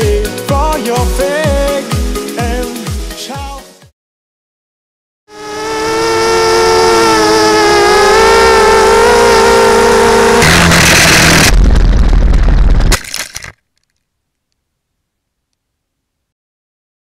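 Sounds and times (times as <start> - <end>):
quadcopter motors whining: 5.3 - 11.5
rush of noise: 5.3 - 13.0
heavy low rumble: 10.4 - 13.0.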